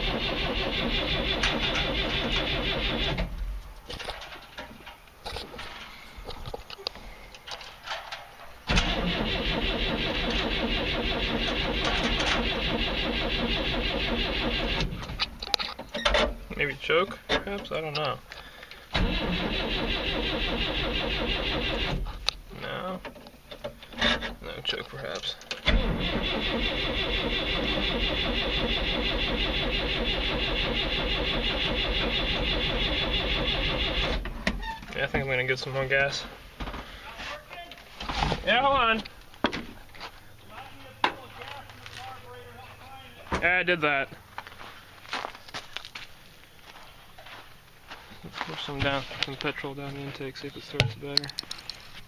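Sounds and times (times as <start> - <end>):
car engine cranking: 0.0 - 3.4, 8.7 - 15.3, 18.9 - 22.3, 25.5 - 34.8.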